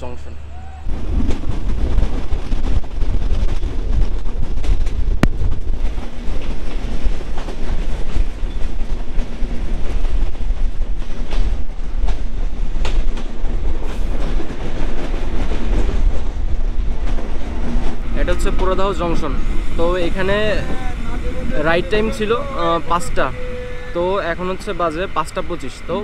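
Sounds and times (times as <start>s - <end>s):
train wheels rumbling on rails: 0.0s - 26.0s
clickety-clack of rail joints: 0.9s - 21.6s.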